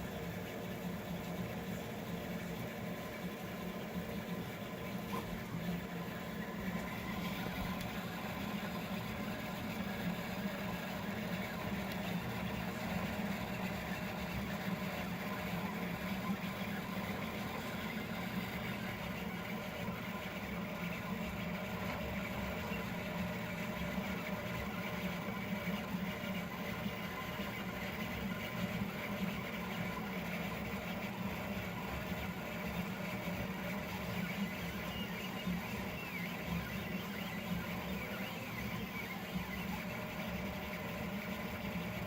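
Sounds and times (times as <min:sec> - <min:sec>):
fan hum: 0:00.0 - 0:26.0.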